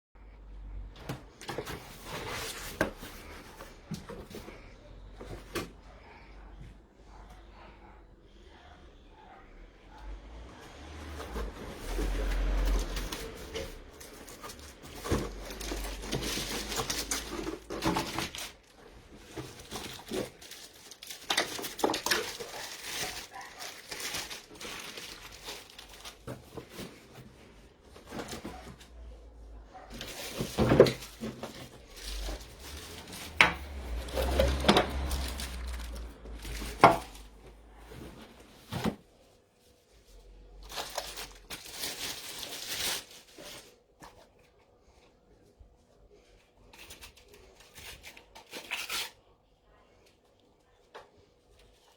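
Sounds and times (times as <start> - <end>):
objects crinkling and rustling: 0.7 - 7.7, 10.0 - 51.9
objects knocking and clattering: 29.9 - 39.0.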